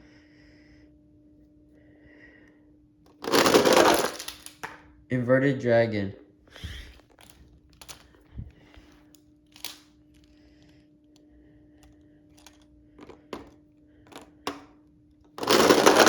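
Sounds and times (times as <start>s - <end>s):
faint steady hum: 0.0s - 16.0s
toy trucks clicking and tapping: 6.8s - 8.1s, 9.5s - 10.3s, 11.8s - 16.0s.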